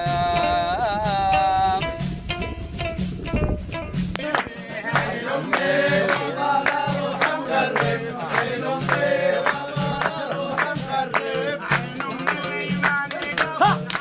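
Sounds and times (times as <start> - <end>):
sharp rhythmic clicks: 4.2 - 13.4.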